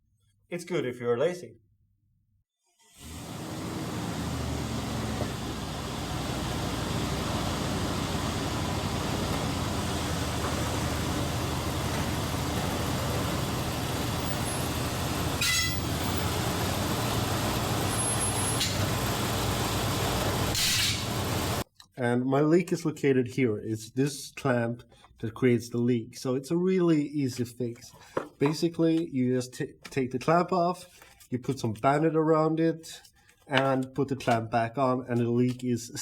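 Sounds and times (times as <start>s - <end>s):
mechanical lifting equipment running: 3.0s - 21.6s.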